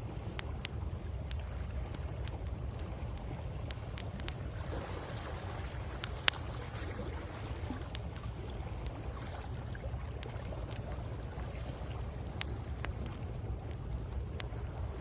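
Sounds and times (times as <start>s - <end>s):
campfire crackling and popping: 0.0s - 15.0s
wind: 0.0s - 15.0s.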